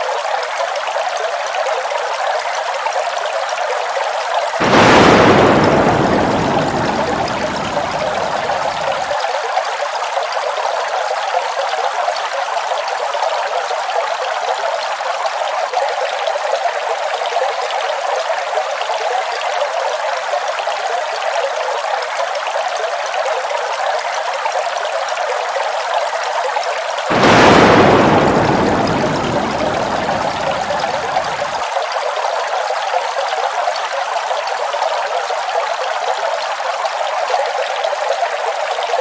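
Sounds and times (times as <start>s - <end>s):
waterfall hissing: 4.6s - 9.1s, 27.1s - 31.6s.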